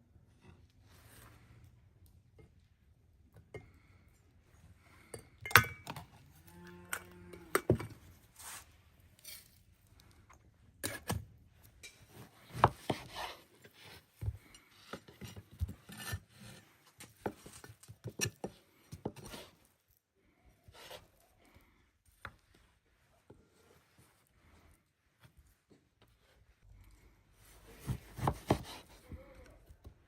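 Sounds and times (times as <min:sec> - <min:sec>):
objects knocked and scraped by hand: 0:10.8 - 0:19.6, 0:27.4 - 0:30.0.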